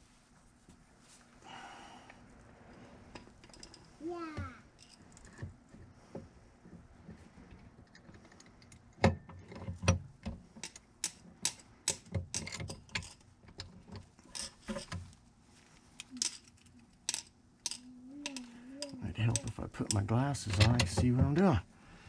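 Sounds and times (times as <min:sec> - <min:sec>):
metal tools clinking and knocking: 0:03.2 - 0:03.9, 0:10.6 - 0:15.0, 0:16.0 - 0:21.6.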